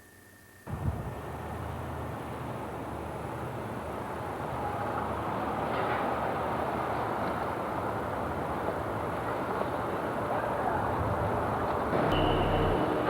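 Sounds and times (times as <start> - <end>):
road noise: 0.7 - 13.0
motor vehicle rumble: 11.0 - 13.0.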